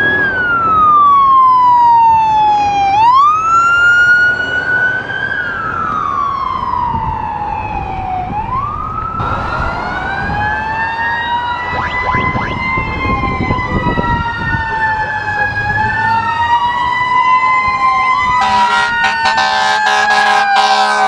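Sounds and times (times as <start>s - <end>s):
emergency sirens wailing: 0.0s - 21.0s
vehicle rumble: 3.0s - 18.4s.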